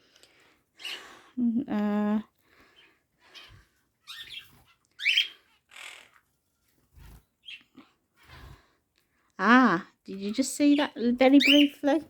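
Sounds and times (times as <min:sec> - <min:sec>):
parrots chirping and squawking: 0:02.8 - 0:06.3, 0:10.7 - 0:11.8.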